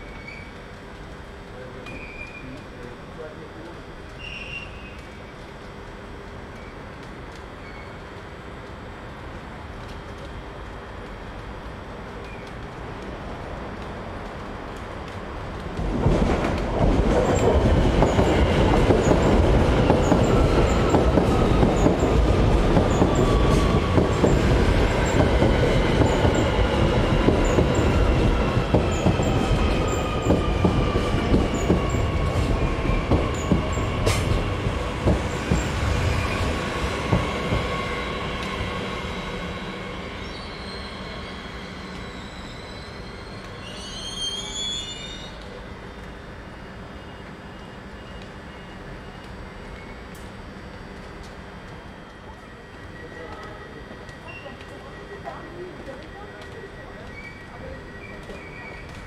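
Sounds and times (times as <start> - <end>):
train wheels on rail slowing: 0.0 - 59.0
brake squeals: 40.2 - 45.4.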